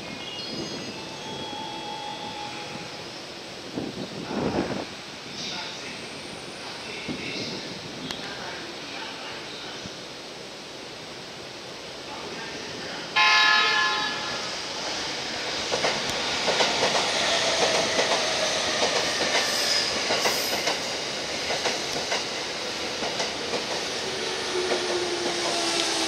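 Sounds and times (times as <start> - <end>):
train rumbling: 11.4 - 26.0
train horn blast: 13.2 - 14.4.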